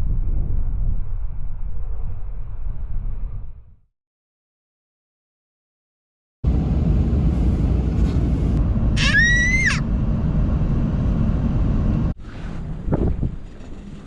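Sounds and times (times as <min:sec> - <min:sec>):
high-pitched squeal: 0:07.1 - 0:10.1
wind buffeting microphone: 0:10.0 - 0:14.0.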